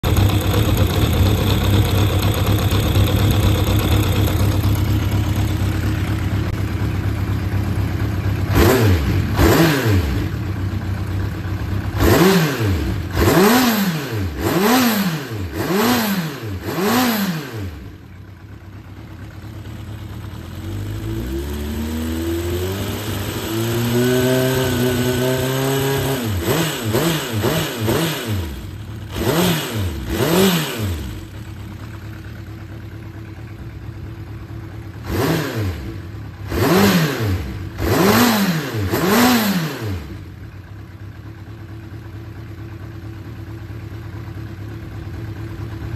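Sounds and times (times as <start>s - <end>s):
motorcycle engine idling: 0.0s - 45.9s.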